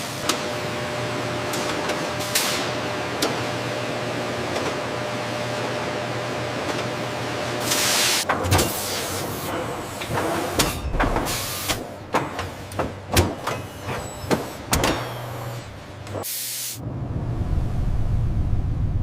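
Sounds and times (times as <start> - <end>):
pneumatic air hiss: 7.6 - 9.4, 11.2 - 11.8, 16.2 - 16.8
machinery low hum: 16.8 - 19.0.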